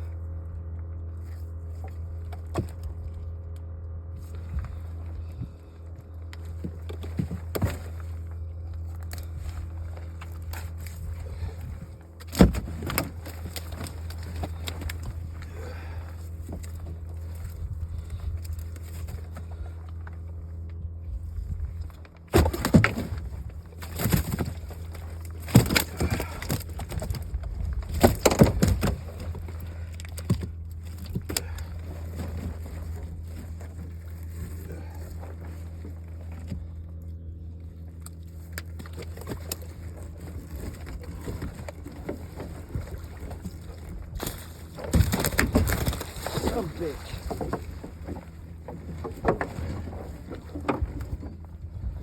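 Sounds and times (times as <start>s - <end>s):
boat motor idling: 0.0s - 52.0s
knocks against boat: 12.2s - 15.1s, 22.3s - 29.4s.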